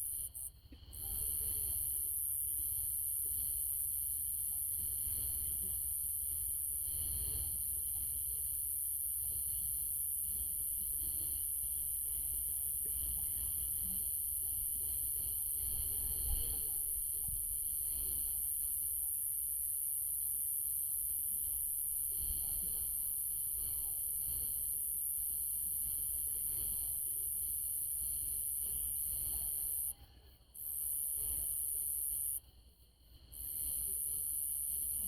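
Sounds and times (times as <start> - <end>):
crickets and insects trilling: 30.6 - 32.4.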